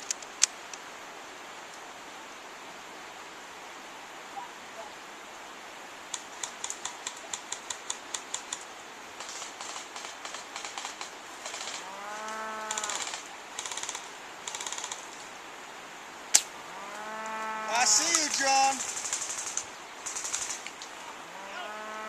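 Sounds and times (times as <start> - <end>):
airsoft guns firing: 9.2 - 11.9, 12.7 - 15.0, 17.8 - 20.6
long drawn-out call: 9.2 - 15.2, 16.4 - 22.0
loud sharp crack: 12.7 - 15.0, 16.3 - 16.5.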